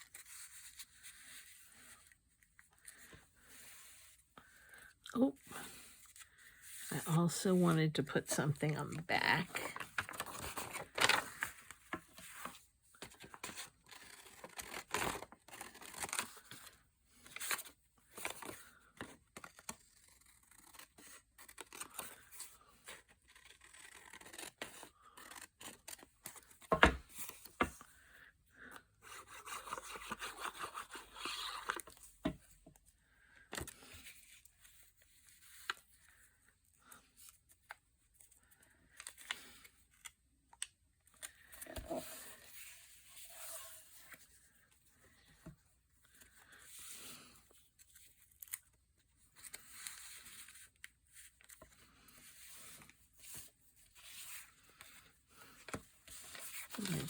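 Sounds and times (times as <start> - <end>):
paper rustling and tearing: 9.6 - 16.7, 22.9 - 26.6, 56.0 - 57.0.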